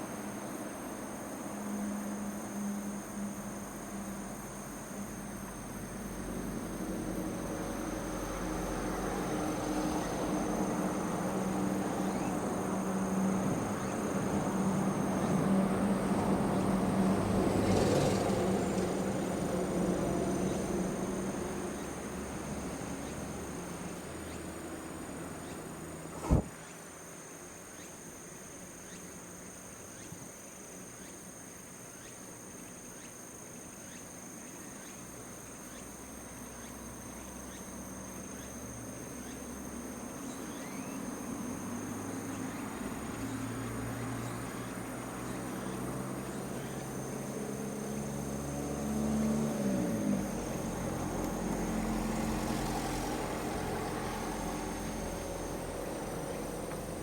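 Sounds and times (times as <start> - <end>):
low motor hum: 26.0 - 26.5, 46.3 - 57.0.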